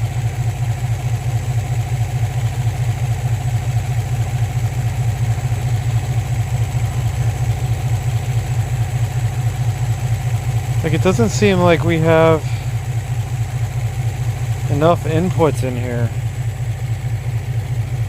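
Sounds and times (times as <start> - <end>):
car engine idling rough: 0.0 - 18.0.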